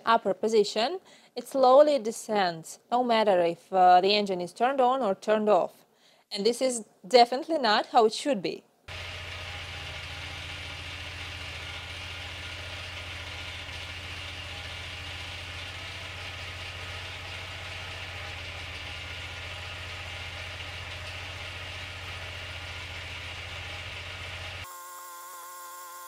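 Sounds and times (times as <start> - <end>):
small gasoline engine idling: 8.9 - 24.7.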